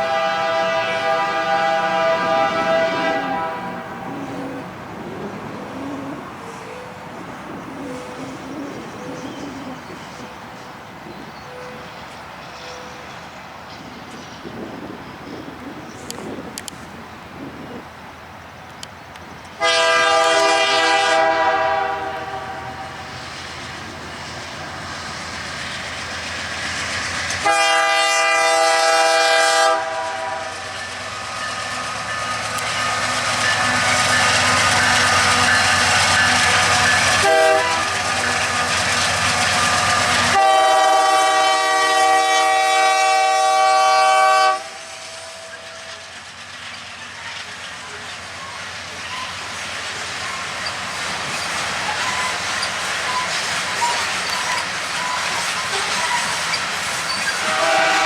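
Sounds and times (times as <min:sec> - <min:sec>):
locomotive air horn blasts: 0:00.0 - 0:04.4, 0:19.6 - 0:23.1, 0:27.4 - 0:30.9, 0:33.5 - 0:38.7, 0:40.1 - 0:46.0, 0:57.4 - 0:58.0
train engine and wheel noise: 0:00.0 - 0:58.0.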